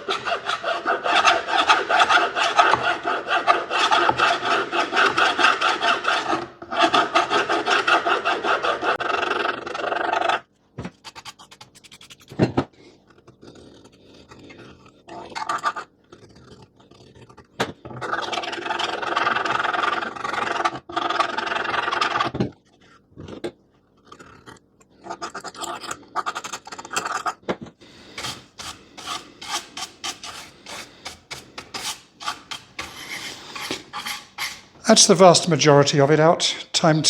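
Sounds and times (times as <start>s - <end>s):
file rasping on wood: 0.0s - 10.4s, 27.9s - 34.8s
faint scrapes: 27.8s - 34.9s.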